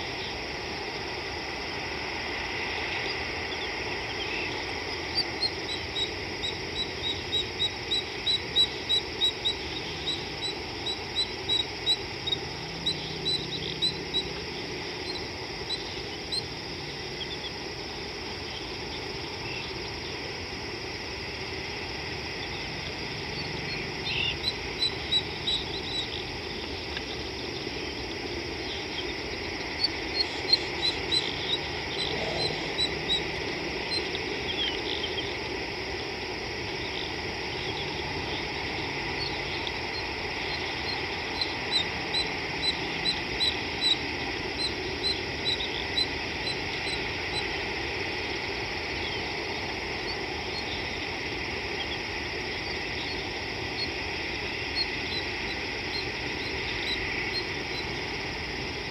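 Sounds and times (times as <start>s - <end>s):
background hiss: 0.0s - 58.9s
bird chirping: 28.6s - 35.2s.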